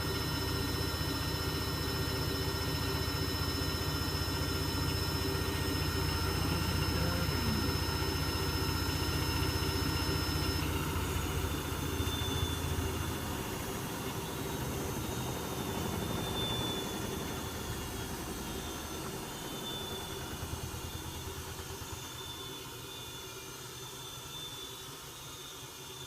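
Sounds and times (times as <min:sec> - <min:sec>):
thin high whine: 0:00.0 - 0:23.6
washing machine motor hum: 0:00.0 - 0:24.8.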